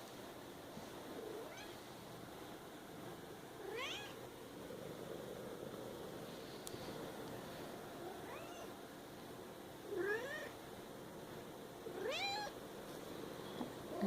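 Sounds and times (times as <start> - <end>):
cat meowing: 3.6 - 4.2, 12.0 - 12.6.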